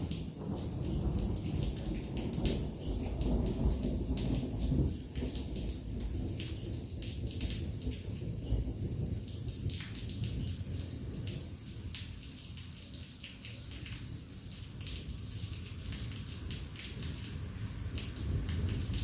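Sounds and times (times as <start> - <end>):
thunder rumbling: 0.0 - 11.9, 17.9 - 19.0
heavy rain falling: 0.0 - 19.0
raindrops striking close by: 0.0 - 19.0.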